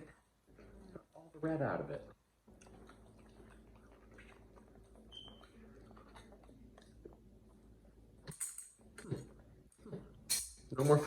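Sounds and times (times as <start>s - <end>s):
low steady hum: 0.0s - 11.0s
faint chewing: 2.1s - 10.2s.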